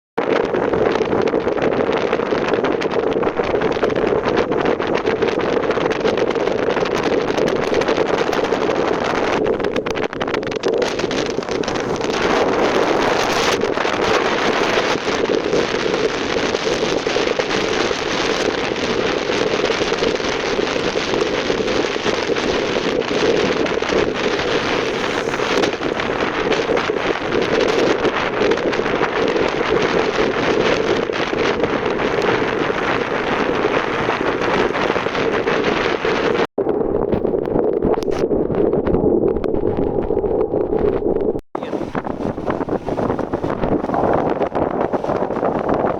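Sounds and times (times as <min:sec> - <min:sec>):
wind rushing over microphone: 0:00.2 - 0:45.9
motorcycle engine drone: 0:09.0 - 0:36.4.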